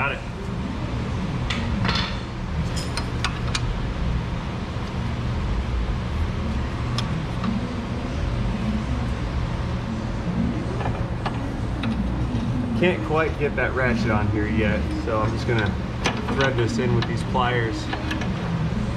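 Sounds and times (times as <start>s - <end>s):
low mechanical hum: 0.0s - 18.9s
tools and metal parts clicking: 2.7s - 3.6s, 15.4s - 17.2s, 17.8s - 18.5s.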